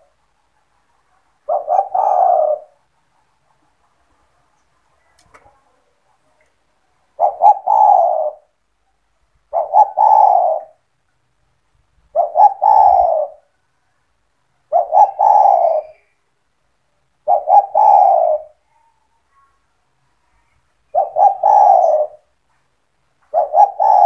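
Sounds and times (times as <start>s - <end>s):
dove cooing: 0.0s - 0.2s, 1.4s - 4.0s, 7.1s - 8.6s, 9.5s - 10.9s, 12.1s - 13.6s, 14.7s - 16.2s, 17.2s - 18.7s, 20.9s - 22.3s, 23.3s - 24.0s.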